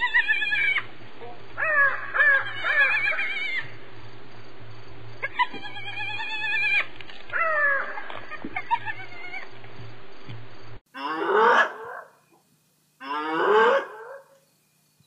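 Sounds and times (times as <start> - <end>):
hyena giggling calls: 7.4 - 9.5.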